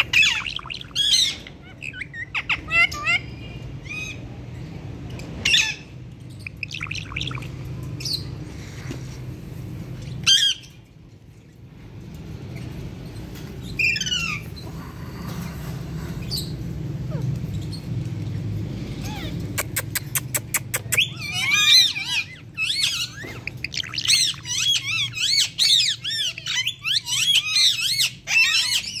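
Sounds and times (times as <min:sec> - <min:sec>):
parrot chirps and squawks: 0:00.0 - 0:04.6, 0:05.3 - 0:08.4, 0:10.1 - 0:10.9, 0:13.6 - 0:18.0, 0:18.9 - 0:29.0.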